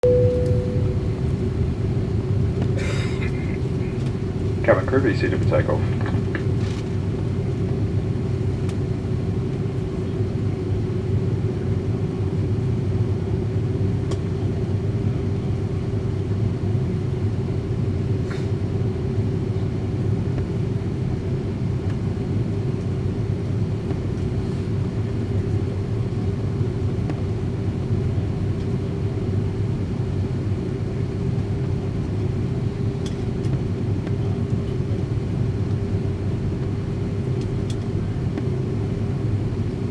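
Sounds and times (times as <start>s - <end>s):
aircraft cabin engine rumble: 0.0s - 39.9s.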